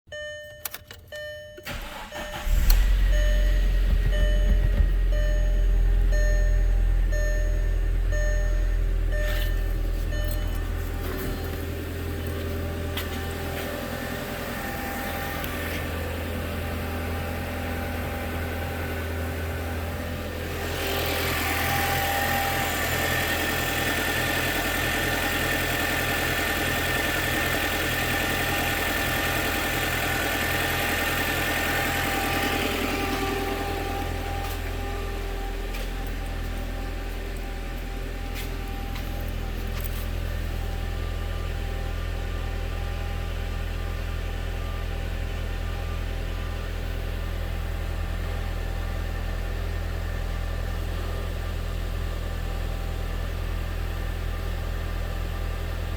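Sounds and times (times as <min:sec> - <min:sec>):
car engine idling: 0:01.1 - 0:42.6.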